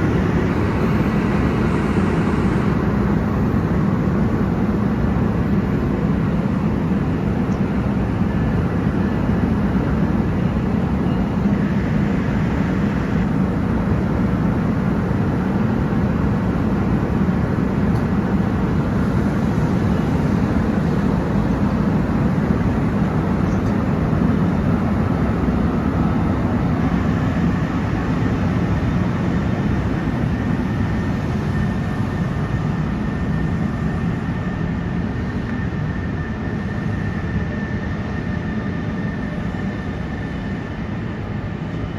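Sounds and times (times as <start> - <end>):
train passing: 0.0 - 4.0.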